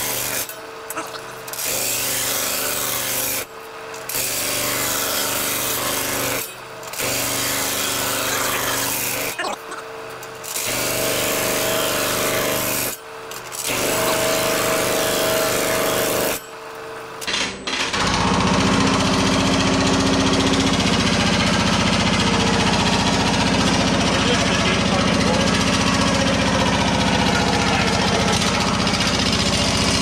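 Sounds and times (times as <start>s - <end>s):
sheet-metal machine chattering: 13.6s - 16.4s.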